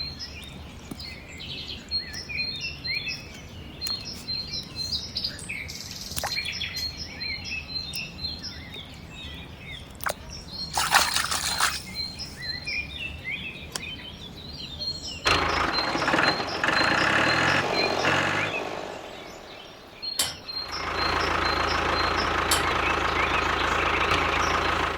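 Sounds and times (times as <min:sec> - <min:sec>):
birds chirping: 0:00.0 - 0:24.9
small engine running: 0:15.3 - 0:19.8, 0:20.7 - 0:24.9
click: 0:20.2 - 0:20.4, 0:22.5 - 0:22.8.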